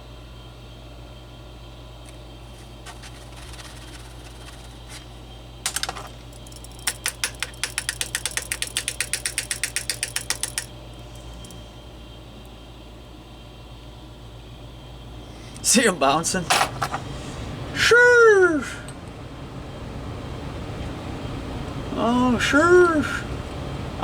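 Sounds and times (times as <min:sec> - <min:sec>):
small part tapping and clattering: 0:02.0 - 0:11.6, 0:16.5 - 0:17.1.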